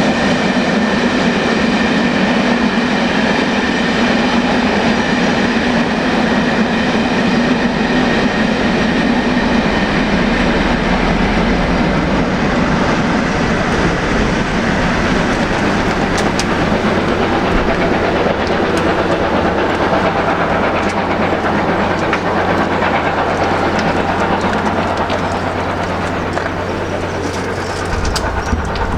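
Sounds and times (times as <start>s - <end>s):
steam train rumbling past: 0.0s - 28.9s
wheels clattering over rail joints: 13.7s - 28.9s.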